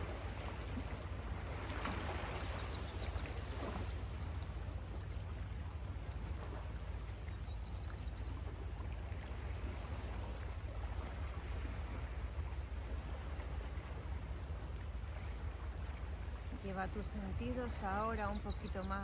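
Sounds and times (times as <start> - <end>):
sea waves washing on beach: 0.0 - 7.3.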